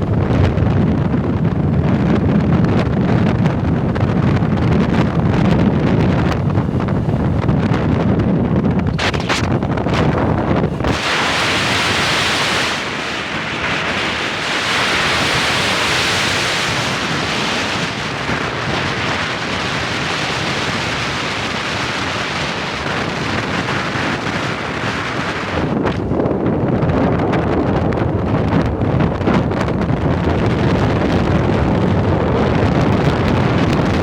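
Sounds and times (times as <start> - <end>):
wind hissing over microphone: 0.0 - 34.0.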